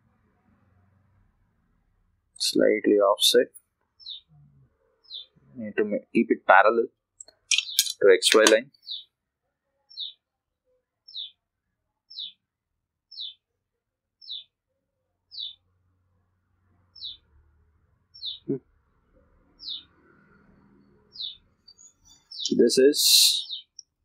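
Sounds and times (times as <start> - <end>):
bird chirping: 2.4 - 9.1, 9.9 - 10.2, 11.0 - 11.4, 12.0 - 12.4, 13.1 - 13.4, 14.2 - 14.6, 15.2 - 15.7, 16.8 - 17.3, 18.1 - 18.6, 19.4 - 24.0.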